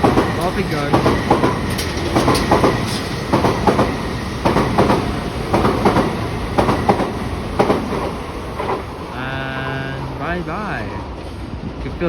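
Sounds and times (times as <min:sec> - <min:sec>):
train rushing past: 0:00.0 - 0:12.0.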